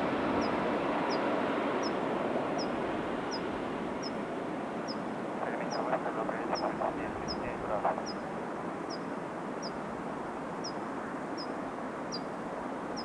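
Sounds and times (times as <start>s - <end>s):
jet plane roar: 5.3s - 8.2s.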